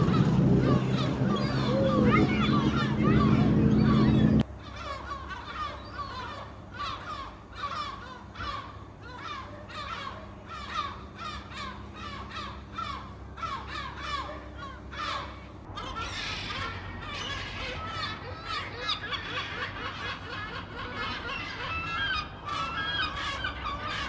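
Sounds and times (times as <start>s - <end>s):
seagulls calling: 0.0s - 24.0s.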